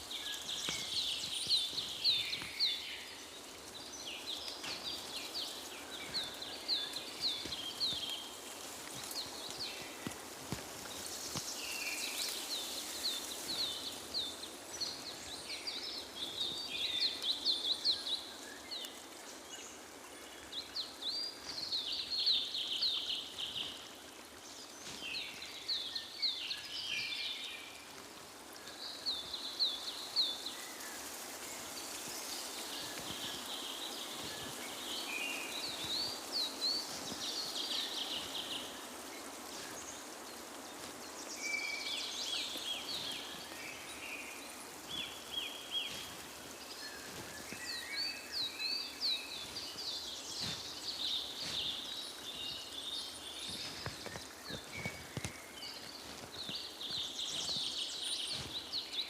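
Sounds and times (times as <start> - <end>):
steady background hiss: 0.0 - 59.0
birds singing: 31.8 - 59.0.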